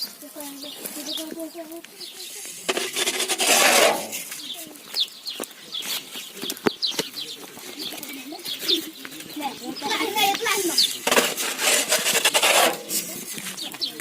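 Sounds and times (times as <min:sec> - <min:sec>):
birds chirping: 0:00.0 - 0:14.0
rushing rustling noise: 0:02.7 - 0:04.4, 0:10.6 - 0:13.6.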